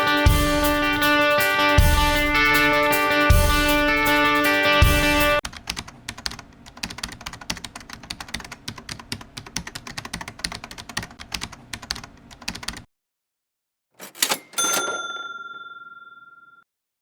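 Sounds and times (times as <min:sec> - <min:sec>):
guitar-led music: 0:00.0 - 0:05.4
rapid keyboard typing: 0:05.4 - 0:12.9.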